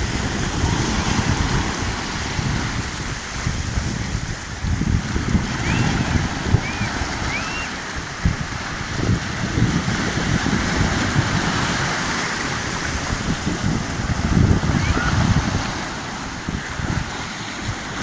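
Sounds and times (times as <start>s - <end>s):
sea surf breaking: 0.0s - 18.0s
wind buffeting microphone: 0.0s - 18.0s
short high chirps: 6.6s - 7.7s.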